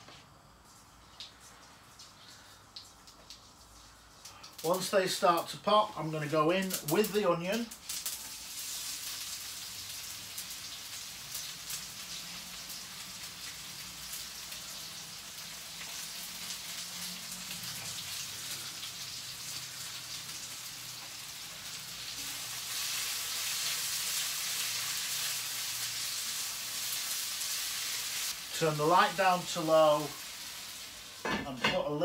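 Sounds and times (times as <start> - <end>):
onions sizzling in oil: 4.0 - 32.0.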